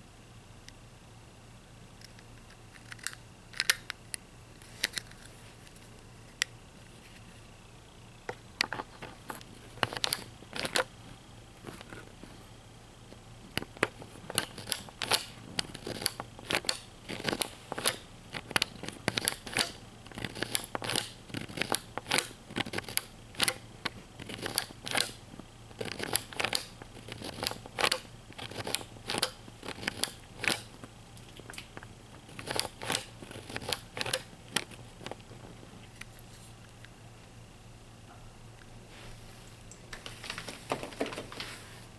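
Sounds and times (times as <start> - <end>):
toy packaging clicking and crinkling: 8.6 - 11.0, 13.5 - 36.1.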